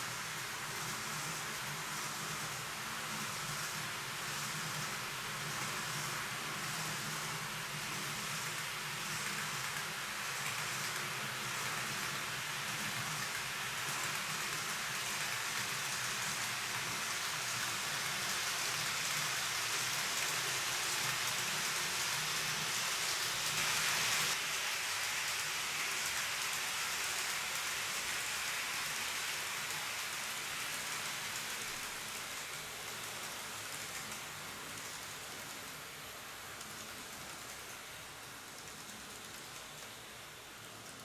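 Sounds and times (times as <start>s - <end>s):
model train running on track: 0.0s - 41.0s.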